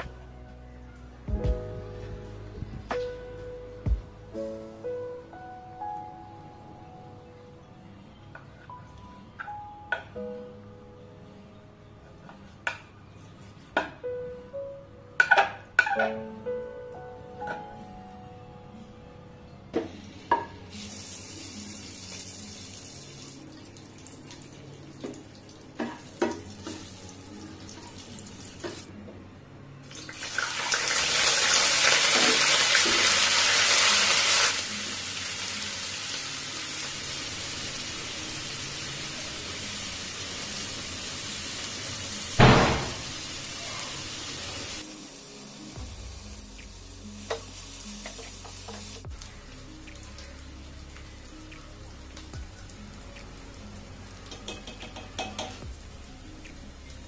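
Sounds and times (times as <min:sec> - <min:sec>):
hot oil sizzling in a wok: 0:20.6 - 0:23.4, 0:29.9 - 0:56.1
thump: 0:42.4 - 0:43.1.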